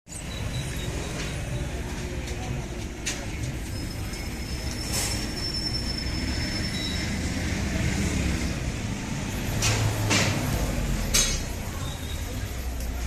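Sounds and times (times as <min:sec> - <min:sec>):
vehicle engine rumbling: 0:00.1 - 0:13.0
noisy clatters: 0:09.5 - 0:13.0.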